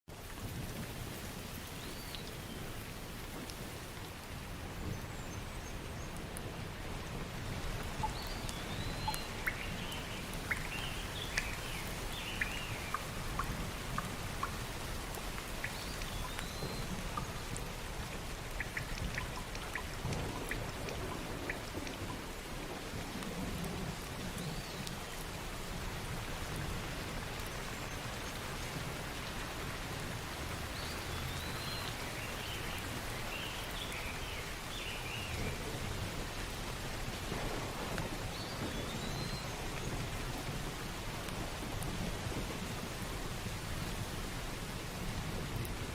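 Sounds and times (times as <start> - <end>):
steady rain: 0.1 - 45.9
sharp drips: 7.6 - 22.3.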